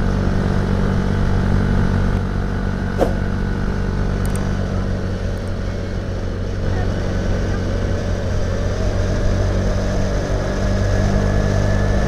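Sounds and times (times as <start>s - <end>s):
motorcycle engine running: 0.0s - 12.0s
short knock: 3.0s - 3.2s.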